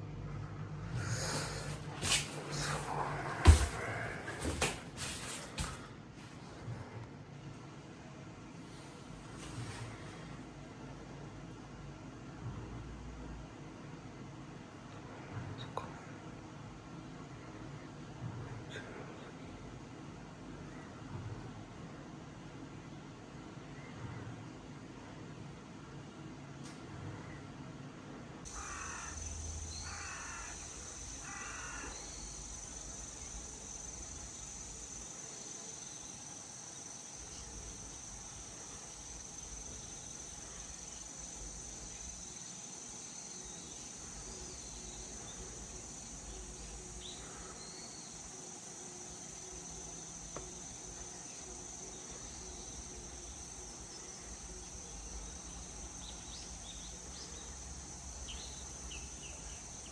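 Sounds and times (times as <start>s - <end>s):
high insect drone: 0.8s - 5.9s, 28.5s - 59.9s
bird harsh calls: 28.5s - 33.0s.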